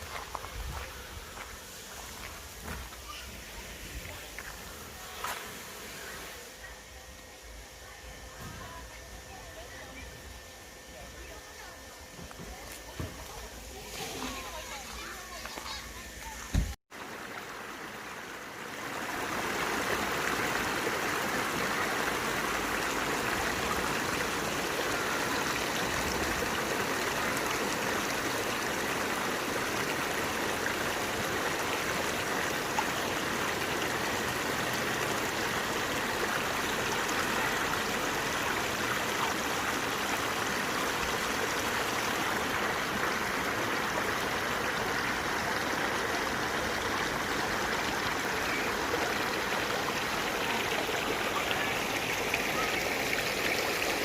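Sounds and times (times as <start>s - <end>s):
stream water running: 0.0s - 54.0s
brief thump: 16.5s - 16.8s.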